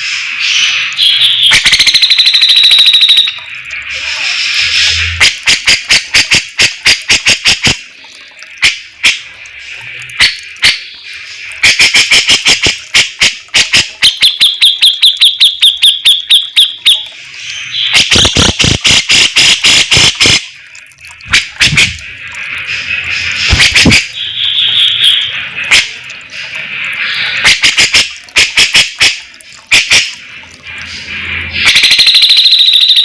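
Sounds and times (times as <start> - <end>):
bulbul singing: 0.9 - 5.0, 13.7 - 27.6.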